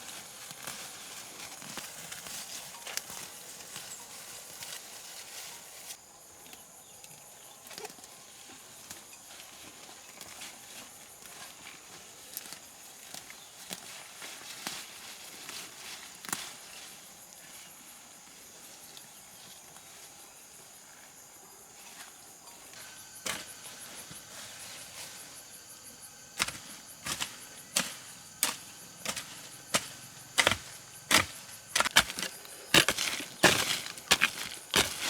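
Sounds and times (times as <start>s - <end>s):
faint outdoor background: 0.0s - 35.0s
blade chopping: 26.4s - 35.0s.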